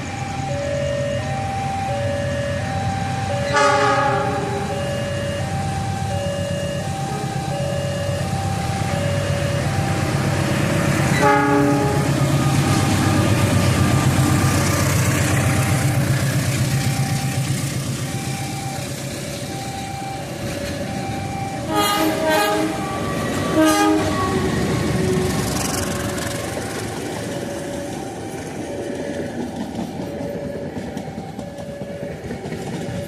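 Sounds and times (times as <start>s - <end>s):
train rumbling past: 0.0s - 33.0s
two-tone crossing warning bell: 0.0s - 33.0s
train horn blasts: 3.4s - 5.2s, 11.1s - 13.7s, 21.6s - 26.0s.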